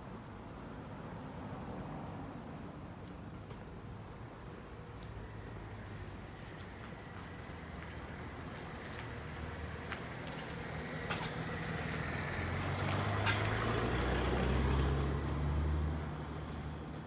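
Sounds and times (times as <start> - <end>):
street noise: 0.0 - 17.0
motor vehicle passing: 7.6 - 17.0.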